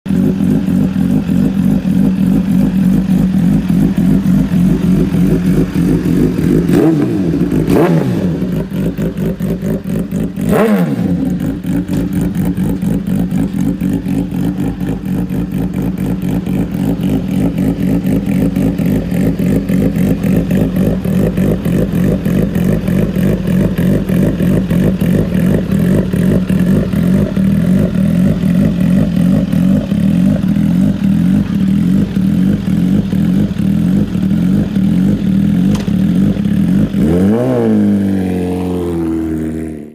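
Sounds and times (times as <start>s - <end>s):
motorcycle engine idling: 0.1s - 39.9s.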